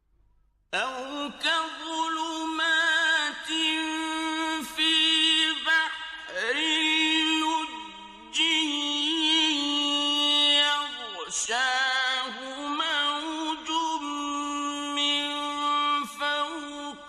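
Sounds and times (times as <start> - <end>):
man chanting recitation: 0.8 - 17.0.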